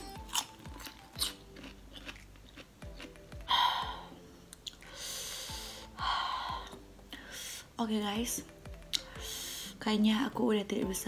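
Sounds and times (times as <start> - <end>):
faint background music: 0.0 - 11.0
chewing crunchy fruit: 0.1 - 4.9.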